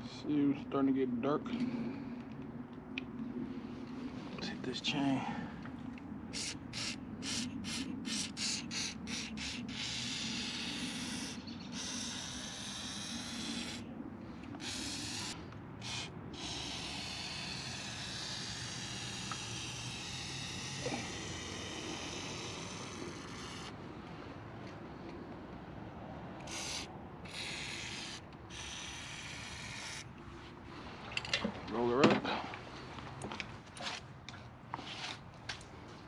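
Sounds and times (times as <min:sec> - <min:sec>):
aerosol can spraying: 0:06.4 - 0:13.8, 0:14.6 - 0:23.7, 0:26.5 - 0:30.0.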